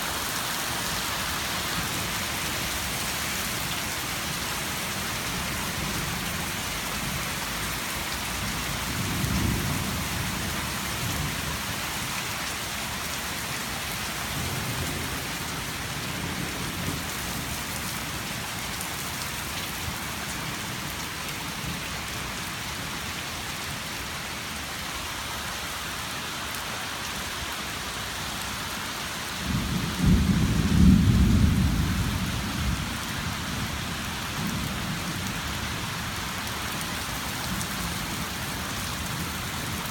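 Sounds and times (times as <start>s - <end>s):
steady rain falling: 0.0s - 39.9s
thunder rumbling: 29.5s - 32.9s.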